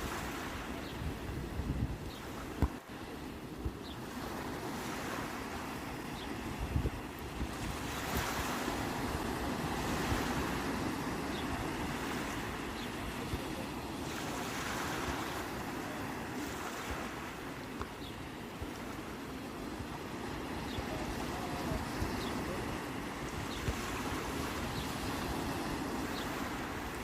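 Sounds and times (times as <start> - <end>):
wind buffeting microphone: 0.0 - 2.8, 6.2 - 17.2
sea waves washing in: 0.0 - 27.0.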